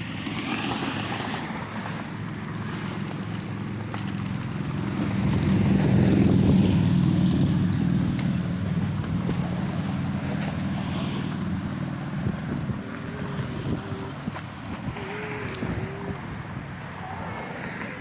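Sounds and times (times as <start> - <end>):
road rumble: 0.0 - 18.0
wind on microphone: 4.6 - 18.0.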